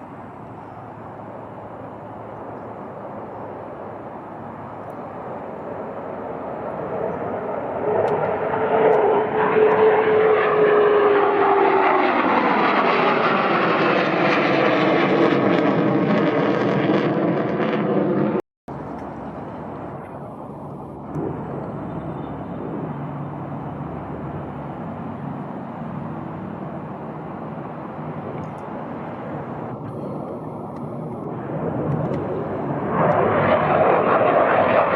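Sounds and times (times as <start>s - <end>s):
fighter jet engine roar: 0.0s - 34.9s
steady jet rumble: 0.0s - 34.9s
jet whine falling in pitch: 6.7s - 25.0s, 28.9s - 34.9s.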